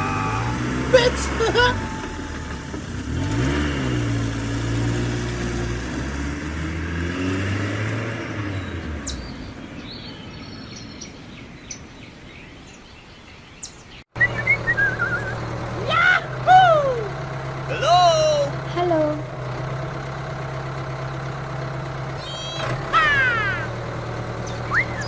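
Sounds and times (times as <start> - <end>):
tractor engine running: 0.0 - 7.1, 14.2 - 25.0
high bird chirps: 8.6 - 15.4, 22.2 - 23.8, 24.4 - 25.0.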